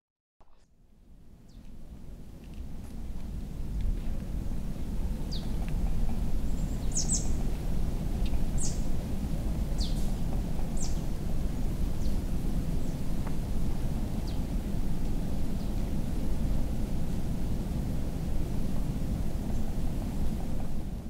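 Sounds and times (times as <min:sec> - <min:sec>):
steady low rumble: 0:00.9 - 0:21.0
small birds chirping: 0:05.2 - 0:07.6, 0:08.2 - 0:08.9, 0:09.7 - 0:11.2.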